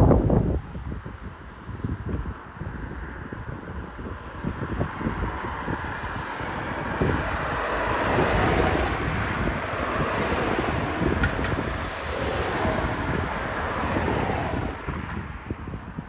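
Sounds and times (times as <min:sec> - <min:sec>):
road traffic: 0:00.0 - 0:16.0
wind buffeting microphone: 0:00.0 - 0:16.0
vehicle passing: 0:05.4 - 0:15.4.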